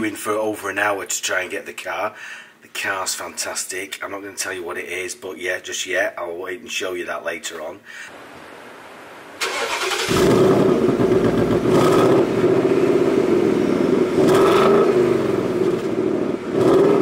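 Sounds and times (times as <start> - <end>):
car engine starting and revving: 9.4 - 17.0.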